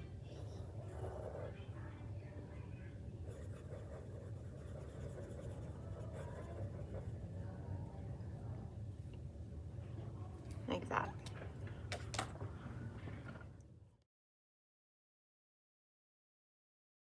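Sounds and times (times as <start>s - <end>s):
steady low hum: 0.0s - 13.9s
drawing tool scratching paper: 0.4s - 1.5s, 3.2s - 7.2s.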